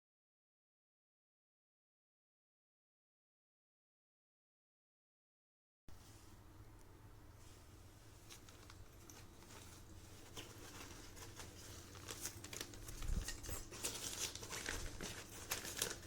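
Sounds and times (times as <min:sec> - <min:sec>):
fabric backpack rustling and crinkling: 0:07.5 - 0:16.0.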